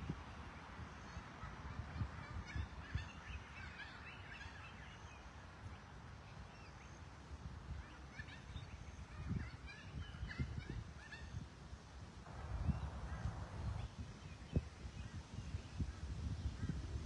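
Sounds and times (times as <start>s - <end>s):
birds chirping: 0.0s - 11.4s, 12.3s - 16.7s
low rumble on microphone: 12.2s - 17.0s.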